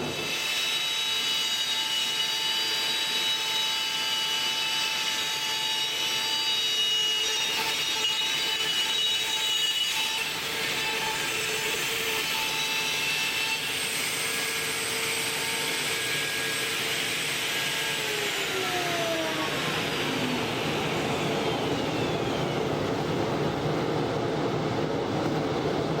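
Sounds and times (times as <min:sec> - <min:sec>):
router spindle whining: 0:14.8 - 0:23.0.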